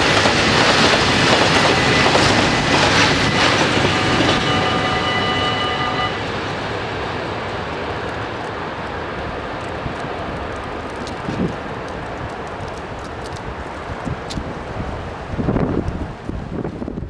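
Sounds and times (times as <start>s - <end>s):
train wheels clattering: 0.0s - 13.4s.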